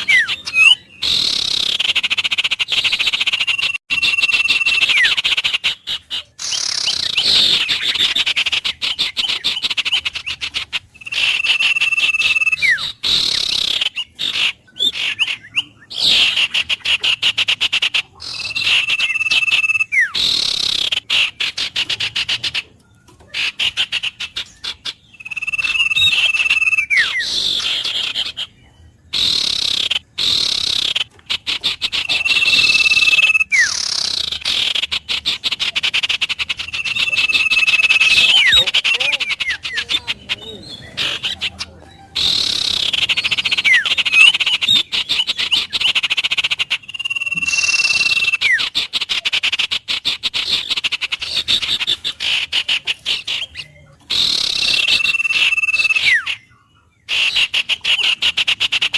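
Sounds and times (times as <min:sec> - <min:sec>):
rapid pulsing animal call: 0:00.0 - 0:58.9
whistled animal call with falling slide: 0:02.7 - 0:05.4, 0:46.8 - 0:48.8, 0:50.4 - 0:58.9.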